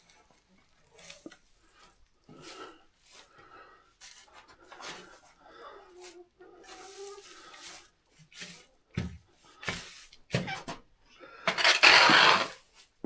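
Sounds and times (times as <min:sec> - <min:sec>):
scraping and rustling: 0:11.5 - 0:12.6.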